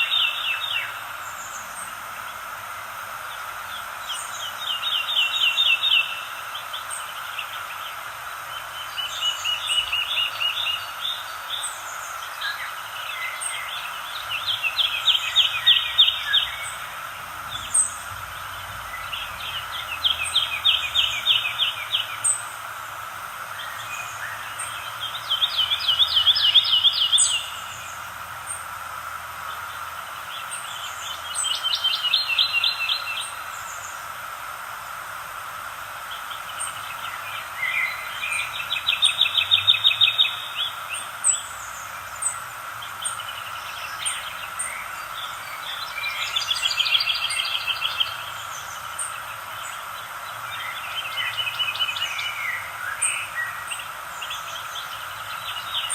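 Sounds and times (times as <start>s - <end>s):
background nature hum: 0.0s - 55.9s
songbird singing trilled phrase: 23.6s - 28.0s, 43.0s - 49.7s.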